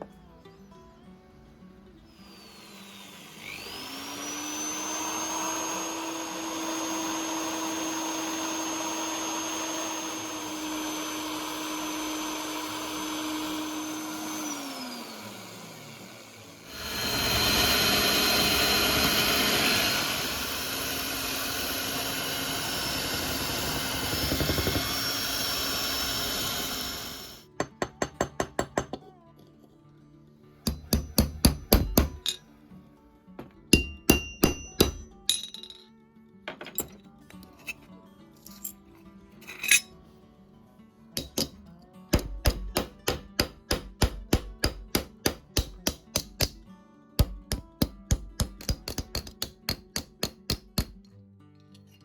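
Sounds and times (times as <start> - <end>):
power tool motor running: 2.1 - 27.4.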